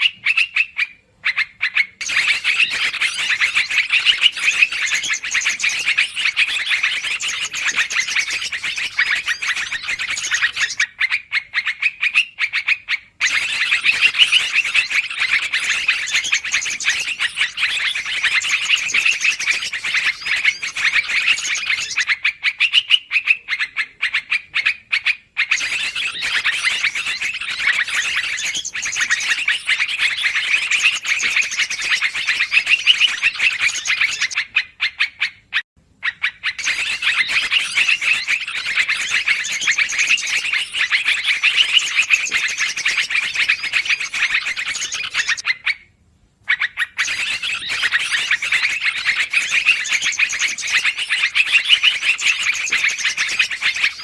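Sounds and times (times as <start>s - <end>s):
bulbuls chattering: 0.0s - 10.8s, 13.2s - 22.1s, 25.5s - 34.5s, 36.6s - 45.4s.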